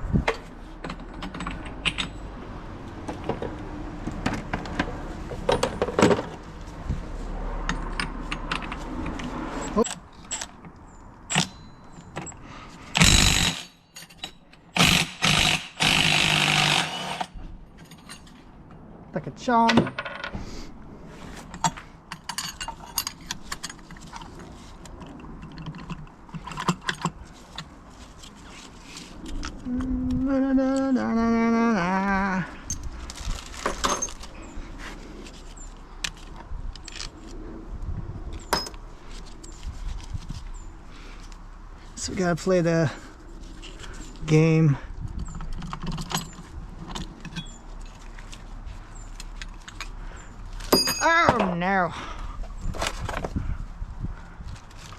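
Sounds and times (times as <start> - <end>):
metallic clinks of tools and parts: 0.8 - 2.3, 9.6 - 12.4, 13.0 - 14.7, 17.8 - 18.5, 21.5 - 24.3, 32.6 - 34.5, 45.2 - 48.4, 50.6 - 51.6
power tool bursts: 13.0 - 13.7, 14.8 - 17.3.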